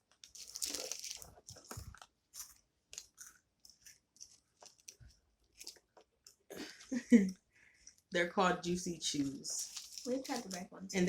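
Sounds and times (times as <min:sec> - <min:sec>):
plastic wrappers crinkling: 0:00.0 - 0:06.5, 0:09.1 - 0:10.8.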